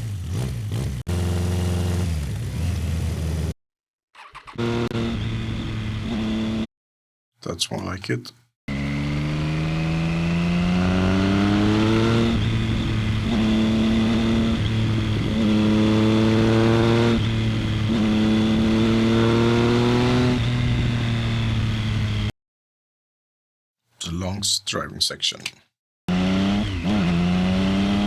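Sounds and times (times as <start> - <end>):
motorcycle engine accelerating: 0.0 - 3.6, 4.2 - 6.7, 8.7 - 22.3, 26.1 - 28.0.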